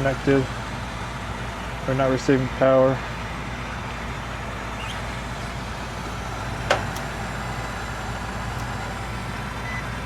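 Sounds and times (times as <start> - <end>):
furnace motor humming: 0.0 - 10.0.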